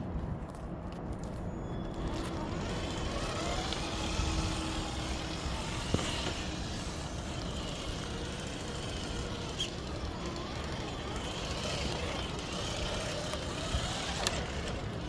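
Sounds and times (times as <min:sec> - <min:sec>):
highway traffic rushing: 0:00.0 - 0:15.0
vehicle passing: 0:02.0 - 0:15.0.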